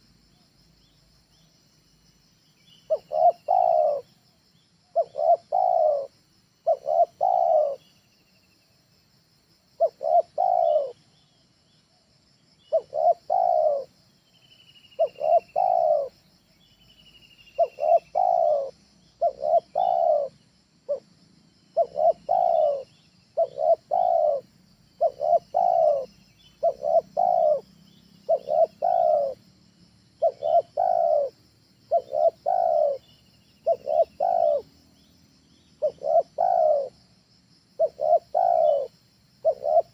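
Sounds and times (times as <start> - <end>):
small bird chirping: 0.0 - 8.8, 9.8 - 11.9, 12.6 - 21.0, 21.6 - 29.4, 30.2 - 37.1, 37.8 - 39.9
dove cooing: 2.8 - 4.2, 4.9 - 8.0, 9.8 - 11.0, 12.6 - 14.0, 14.9 - 16.3, 17.4 - 21.1, 21.7 - 29.4, 30.2 - 34.8, 35.6 - 37.1, 37.8 - 39.9.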